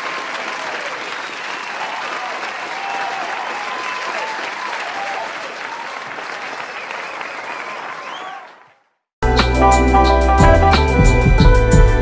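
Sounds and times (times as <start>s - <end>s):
people clapping and cheering: 0.0s - 9.0s
whoops: 0.6s - 6.1s, 6.8s - 8.6s.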